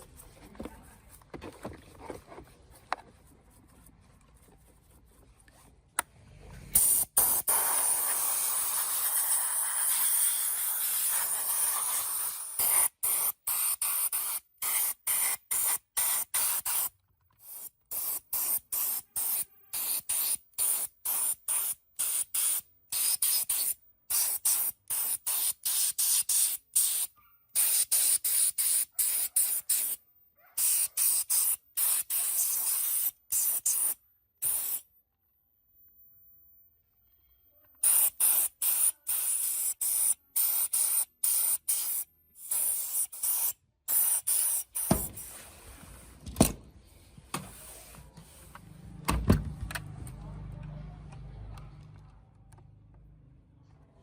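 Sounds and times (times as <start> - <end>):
spray nozzle hissing: 6.8 - 28.8.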